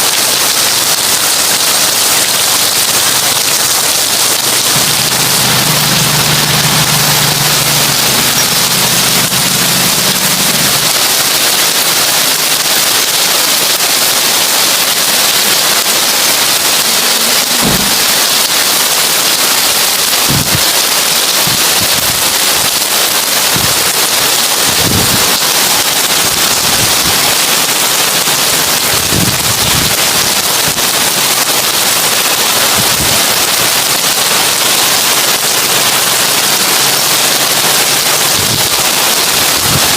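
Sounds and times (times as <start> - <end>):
heavy rain on a tin roof: 0.0 - 39.9
low thumps: 4.6 - 11.0, 17.6 - 18.4.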